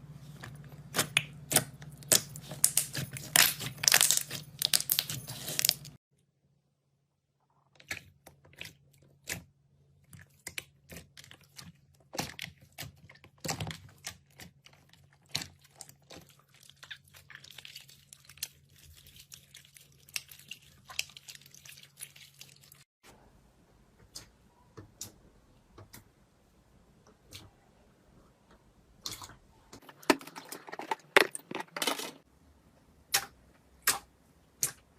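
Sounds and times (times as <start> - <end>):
slime crackling and popping: 0.9 - 5.9.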